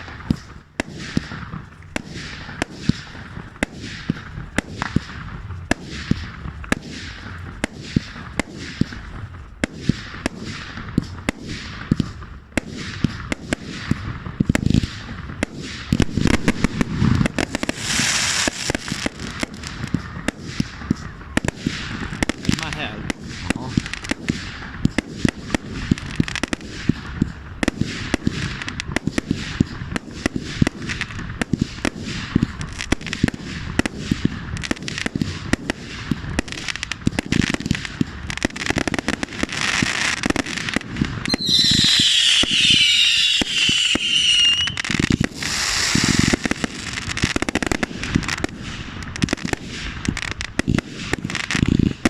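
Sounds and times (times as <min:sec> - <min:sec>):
firework bangs and crackles: 0:00.0 - 0:52.0
shrill wavering whistle: 0:41.3 - 0:45.0.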